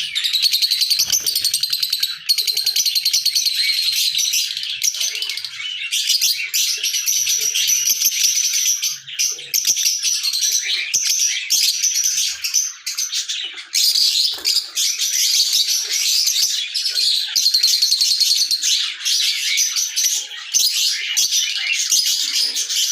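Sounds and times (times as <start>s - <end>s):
lovebirds chirping: 0.0s - 22.9s.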